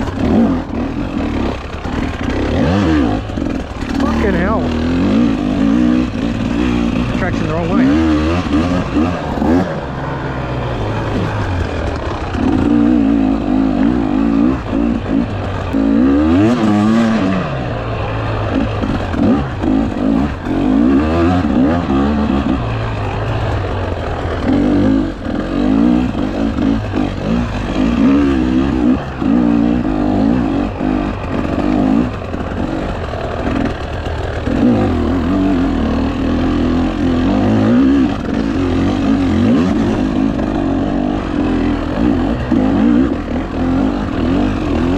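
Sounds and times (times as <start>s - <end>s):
dirt bike engine revving: 0.0s - 44.9s.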